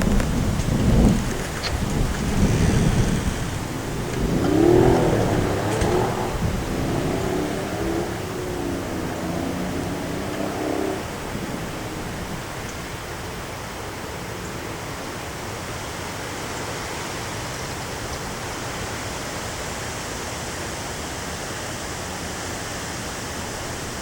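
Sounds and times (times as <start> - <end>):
low pitched hum: 0.0 - 13.1
heavy rain: 0.0 - 19.9
wind: 0.0 - 24.0.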